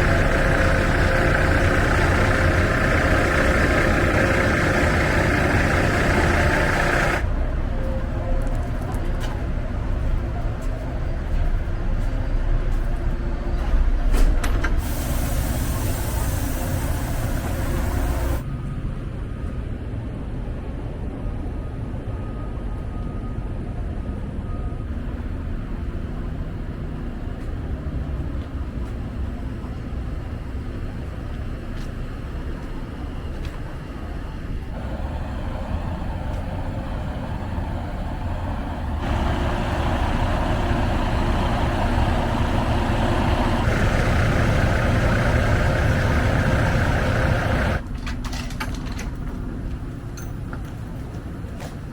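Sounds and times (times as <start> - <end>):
diesel truck engine rumbling: 0.0 - 18.6, 24.9 - 51.8
sharp hiss: 14.8 - 18.4.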